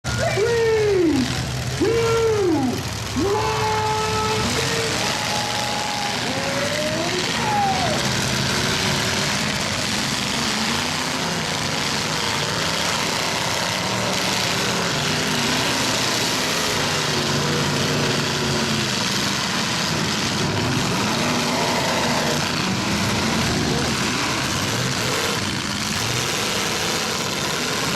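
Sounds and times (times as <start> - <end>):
truck engines revving: 0.0 - 27.9.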